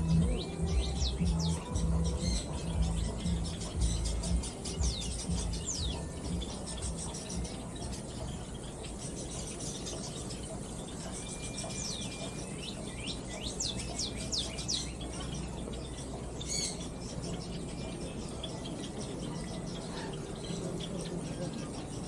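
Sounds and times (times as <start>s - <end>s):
low background rumble: 0.0s - 8.9s
birds chirping: 0.0s - 22.0s.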